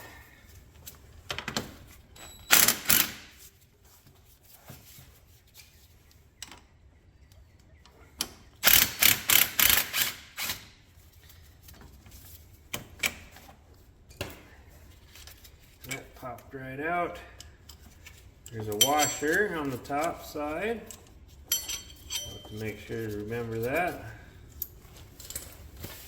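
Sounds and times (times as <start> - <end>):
hand tools clicking and clanking: 17.2 - 26.0.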